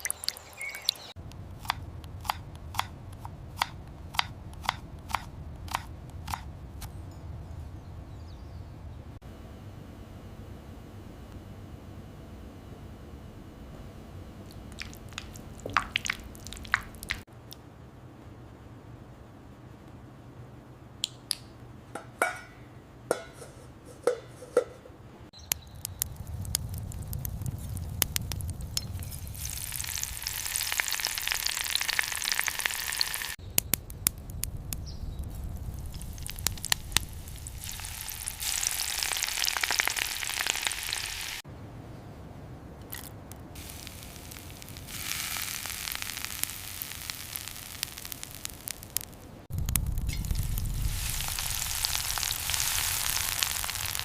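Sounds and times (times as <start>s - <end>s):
food sizzling in hot oil: 14.5s - 17.2s, 26.6s - 33.4s, 35.6s - 41.4s, 43.6s - 54.0s.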